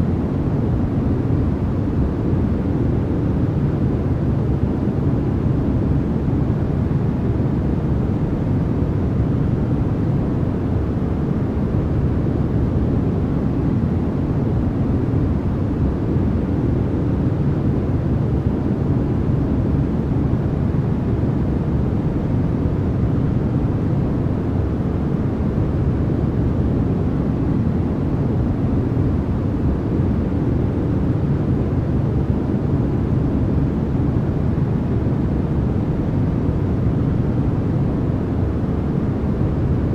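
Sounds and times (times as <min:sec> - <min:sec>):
deep white noise rush: 0:00.0 - 0:39.9.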